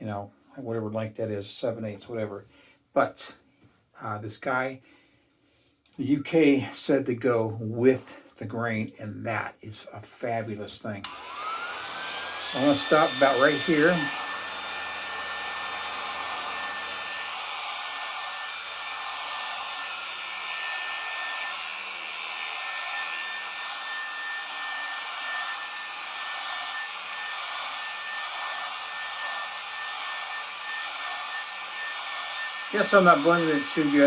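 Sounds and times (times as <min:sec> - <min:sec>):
hair clippers whirring: 0:11.0 - 0:34.0.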